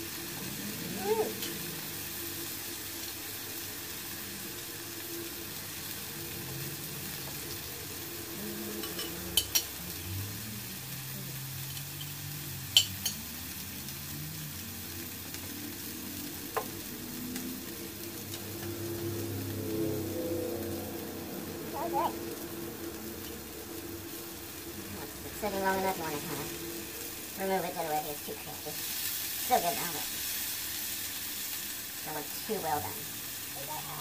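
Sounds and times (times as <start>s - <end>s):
meat sizzling on a grill pan: 0.0s - 34.0s
chopsticks clicking against pan: 8.8s - 9.8s, 11.6s - 13.4s.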